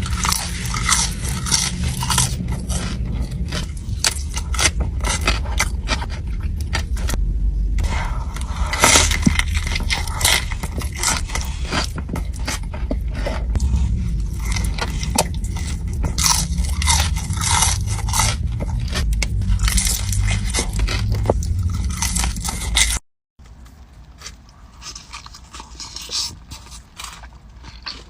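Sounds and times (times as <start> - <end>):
crunchy food chewing: 0.0 - 7.2, 7.8 - 28.0.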